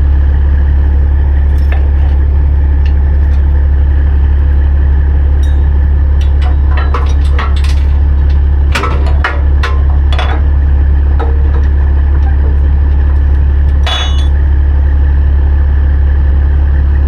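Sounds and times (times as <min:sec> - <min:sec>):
truck diesel engine droning: 0:00.0 - 0:17.0
metallic clicks and clanks: 0:01.4 - 0:14.5.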